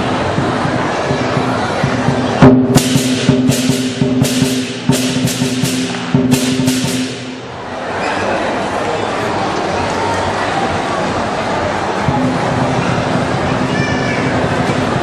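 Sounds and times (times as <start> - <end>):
big drum beaten quickly: 0.0 - 7.8, 12.0 - 15.0.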